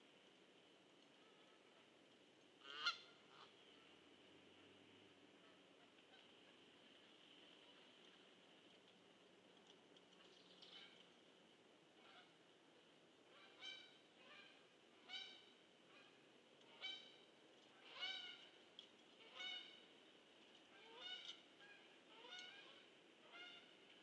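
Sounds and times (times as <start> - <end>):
low background hiss: 0.0 - 24.0
faint bird calls: 2.6 - 4.0, 12.0 - 12.4, 13.3 - 19.9, 20.7 - 23.9.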